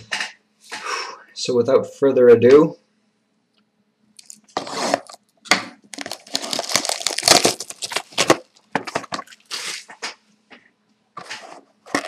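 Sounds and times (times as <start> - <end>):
packaging crinkling and tearing: 4.2 - 9.9, 11.3 - 12.0.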